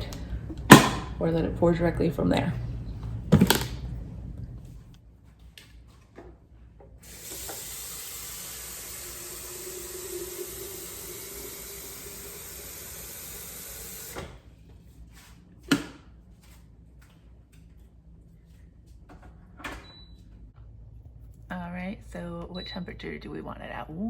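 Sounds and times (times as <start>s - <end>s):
tap water running into kettle: 7.0s - 14.3s.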